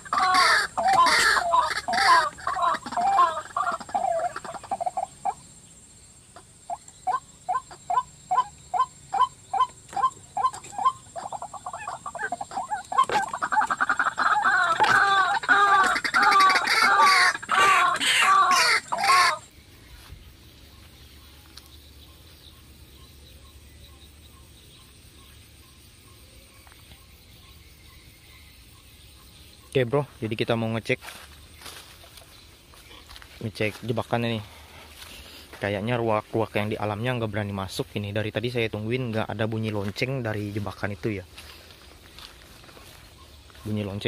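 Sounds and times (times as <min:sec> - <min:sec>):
bird calling repeated notes: 0:00.0 - 0:05.4, 0:06.3 - 0:19.5.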